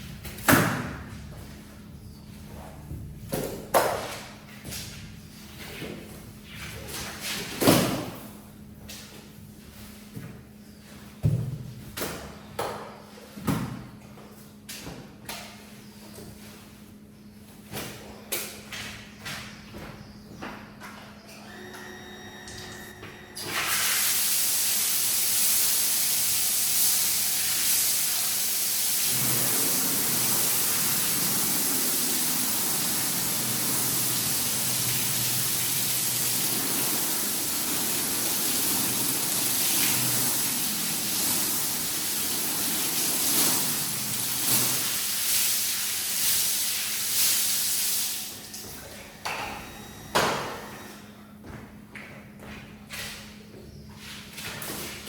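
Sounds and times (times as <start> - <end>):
pressure washer spraying water: 23.5 - 48.5.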